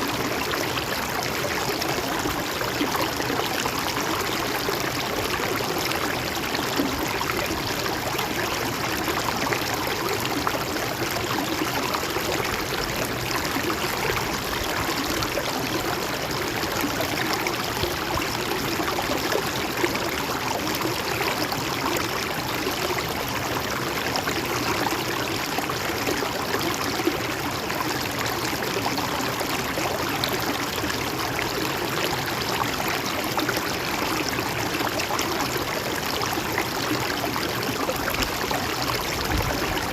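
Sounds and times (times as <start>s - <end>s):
water rushing over rocks: 29.4s - 39.9s.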